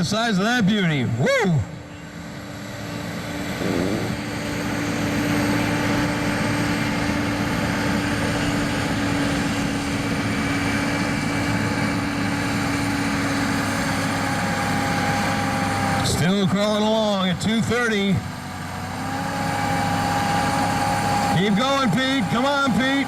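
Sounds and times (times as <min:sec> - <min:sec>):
tractor engine running flat out: 0:00.0 - 0:23.0.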